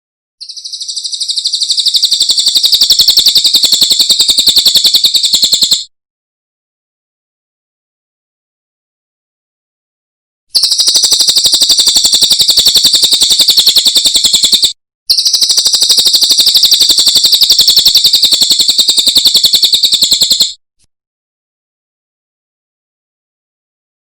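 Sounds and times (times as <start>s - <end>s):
bird singing a rapid trill: 0.4s - 5.9s, 10.5s - 20.6s.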